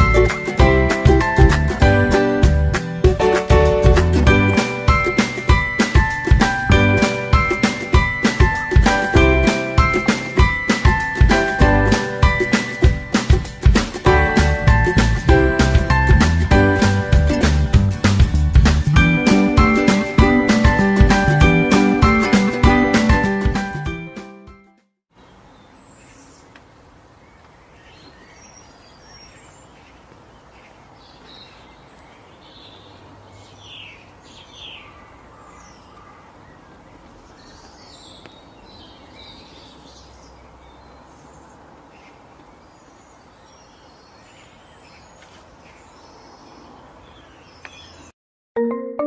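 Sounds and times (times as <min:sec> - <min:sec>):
forest ambience hiss: 0:25.2 - 0:48.1.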